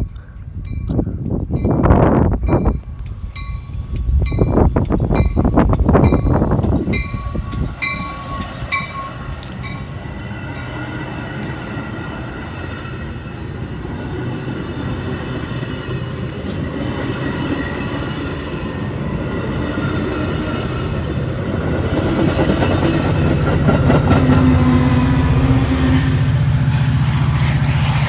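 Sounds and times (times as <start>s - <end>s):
train passing: 0.0s - 28.0s
crossing bell dinging: 0.7s - 13.3s.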